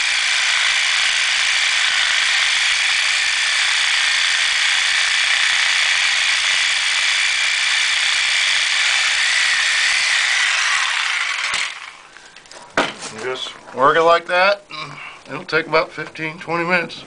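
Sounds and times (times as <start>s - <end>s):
reciprocating saw cutting iron pipe: 0.0s - 12.1s.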